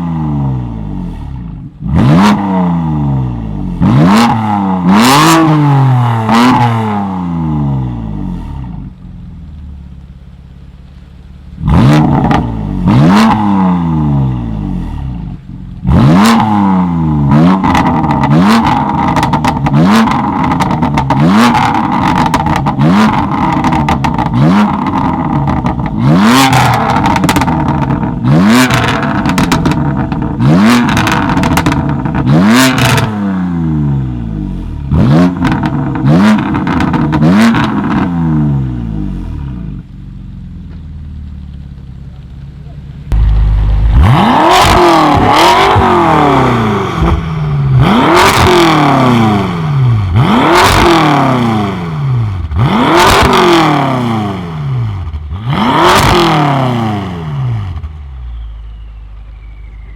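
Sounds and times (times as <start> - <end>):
car engine revving in blips: 0.0 - 9.7, 10.8 - 59.9
exhaust crackling and popping: 8.3 - 33.1, 34.5 - 54.1.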